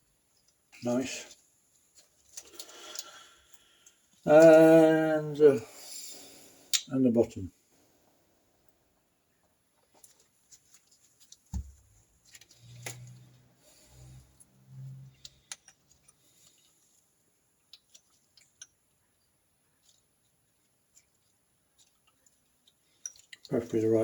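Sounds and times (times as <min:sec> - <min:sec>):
small metal parts clicking: 0:15.2 - 0:16.7, 0:21.8 - 0:23.6.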